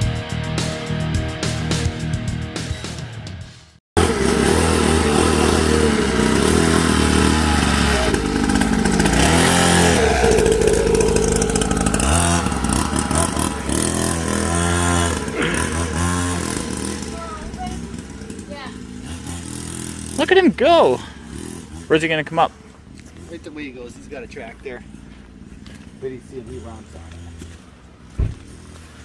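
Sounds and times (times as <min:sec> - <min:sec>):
music: 0:00.0 - 0:03.8
pit bike engine revving: 0:04.0 - 0:29.0.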